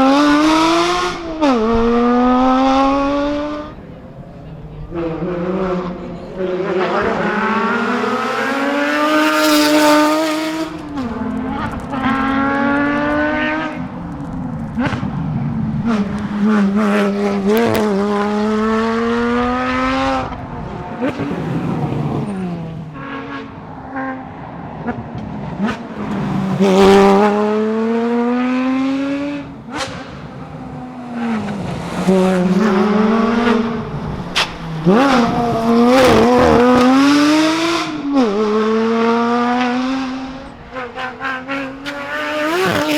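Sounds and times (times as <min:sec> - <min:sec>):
sports car engine revving: 0:00.0 - 0:42.9.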